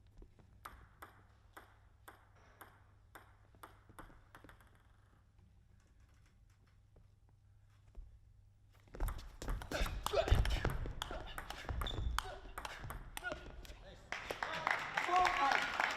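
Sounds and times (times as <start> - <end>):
table tennis ball hits: 0.6 - 5.1, 9.0 - 13.6.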